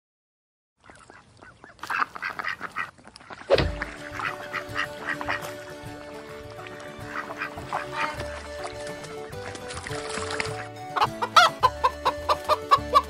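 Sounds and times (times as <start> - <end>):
ducks quacking: 0.8 - 13.0
low thump: 3.5 - 4.2
background music with held notes: 3.6 - 13.0.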